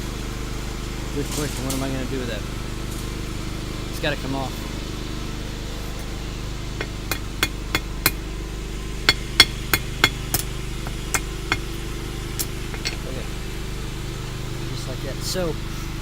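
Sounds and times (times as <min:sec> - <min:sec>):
steady low hum: 0:00.0 - 0:16.0
hammer striking steel on anvil: 0:06.8 - 0:08.3, 0:09.0 - 0:11.8, 0:12.4 - 0:13.2.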